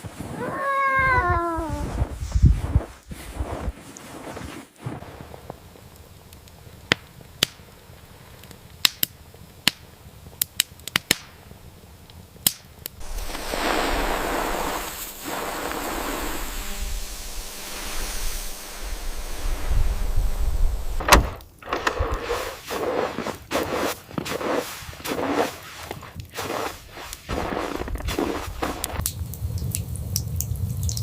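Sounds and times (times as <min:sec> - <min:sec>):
steady rushing noise: 0:13.0 - 0:21.4
sharp clicks and pops: 0:27.8 - 0:31.0.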